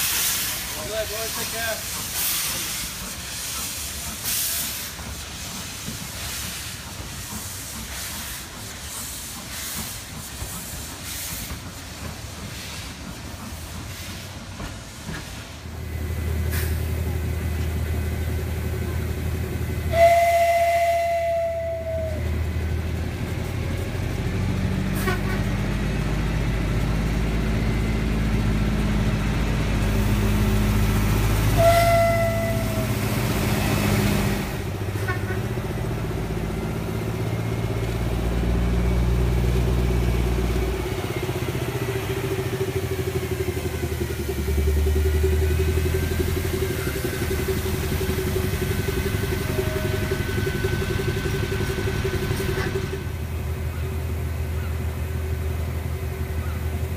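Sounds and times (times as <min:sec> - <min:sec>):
train rumbling: 0:00.0 - 0:56.9
train whistle toot: 0:19.9 - 0:22.3, 0:25.0 - 0:25.4, 0:31.5 - 0:33.0, 0:35.0 - 0:35.6, 0:49.2 - 0:50.8.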